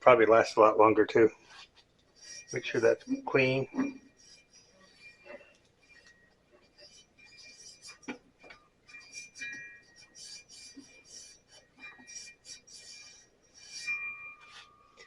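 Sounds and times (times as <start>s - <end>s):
hand scrubbing saw wheel: 1.4s - 14.8s.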